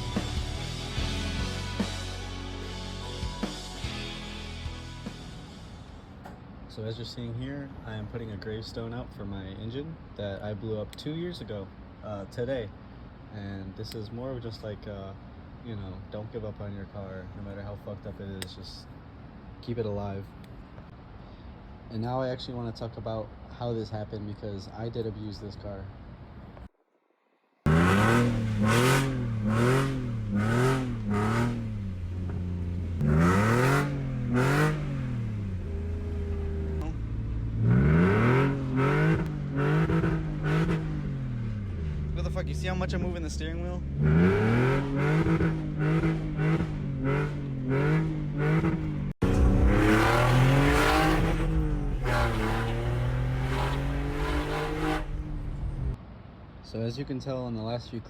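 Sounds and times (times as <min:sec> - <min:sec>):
car engine revving: 0:27.7 - 0:56.0.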